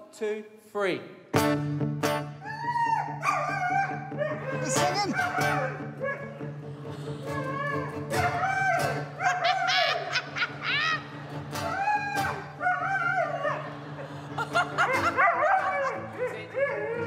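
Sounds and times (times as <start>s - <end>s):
guitar playing: 1.3s - 17.0s
dog yelping and howling: 2.4s - 6.5s, 7.3s - 11.0s, 11.6s - 14.0s, 14.8s - 17.0s.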